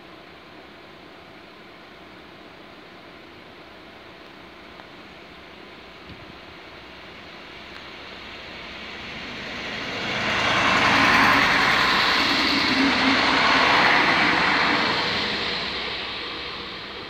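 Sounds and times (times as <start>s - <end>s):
train passing at speed: 3.8s - 17.0s.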